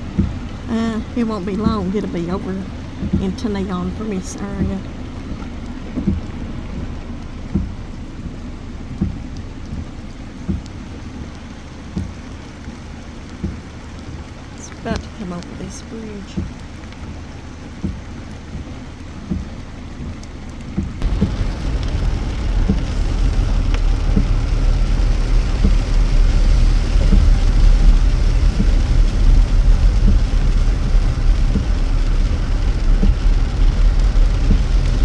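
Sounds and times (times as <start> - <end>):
drops ticking: 0.0 - 35.0
rain falling: 0.0 - 35.0
loud steady low rumble: 21.0 - 35.0.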